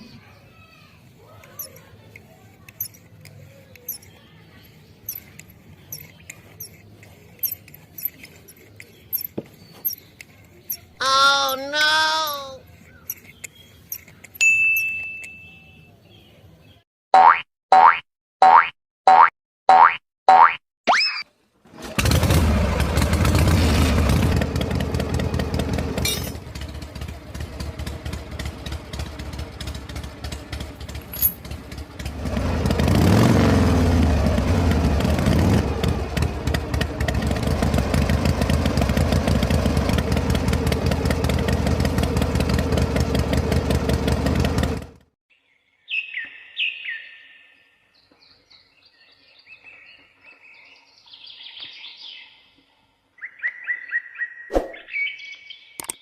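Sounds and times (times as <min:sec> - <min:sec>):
birds chirping: 0:00.0 - 0:16.8
small pump engine running: 0:21.8 - 0:45.1.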